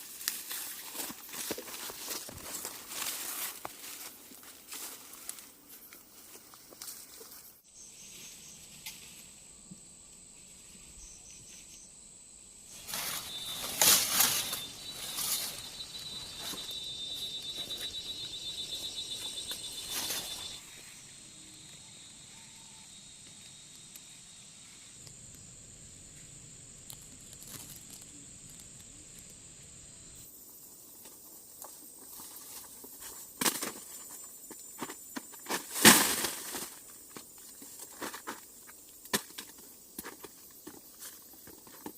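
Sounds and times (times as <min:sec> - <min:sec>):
rustling: 0:00.0 - 0:09.4, 0:12.7 - 0:20.7
insects trilling: 0:00.0 - 0:41.9
high-pitched insect whine: 0:10.3 - 0:41.9.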